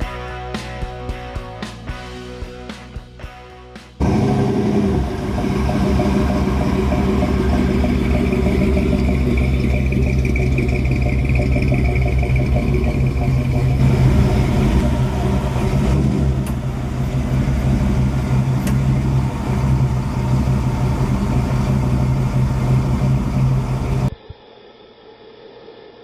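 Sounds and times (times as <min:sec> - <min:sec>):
car engine idling: 0:04.0 - 0:24.1.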